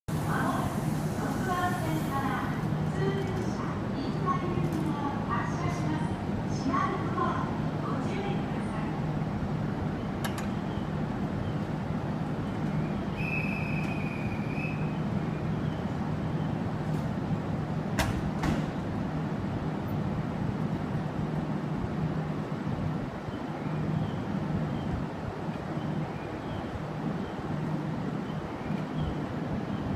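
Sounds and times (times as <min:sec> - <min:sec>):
electric train humming: 0:00.1 - 0:05.1.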